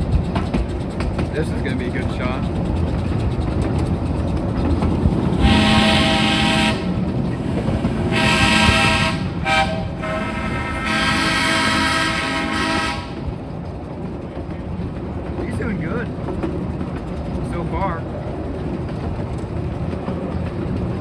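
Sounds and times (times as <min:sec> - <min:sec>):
train rumbling: 0:00.0 - 0:21.0
steam locomotive whistle: 0:05.4 - 0:13.2.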